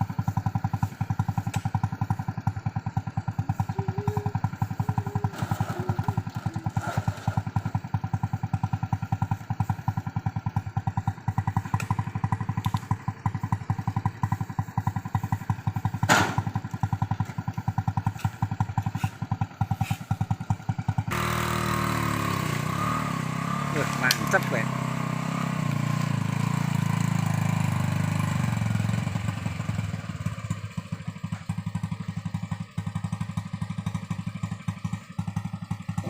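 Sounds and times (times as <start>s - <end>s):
motorcycle engine at low revs: 0.0s - 36.0s
loud thump: 16.0s - 16.6s.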